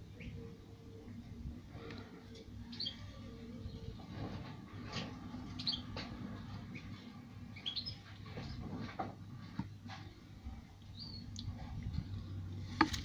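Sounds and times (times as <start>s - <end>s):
low background noise: 0.0s - 13.0s
small bird chirping: 2.7s - 3.1s, 5.6s - 5.9s, 7.6s - 8.1s, 10.9s - 11.5s.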